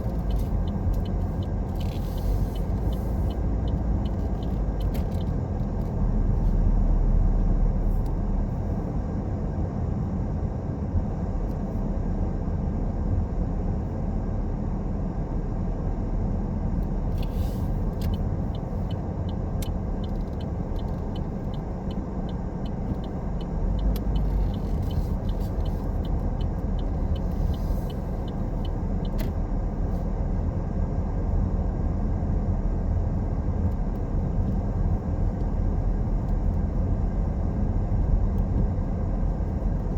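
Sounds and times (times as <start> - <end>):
car tyres and engine rumble: 0.0 - 39.9
light regular ticking: 18.0 - 29.4.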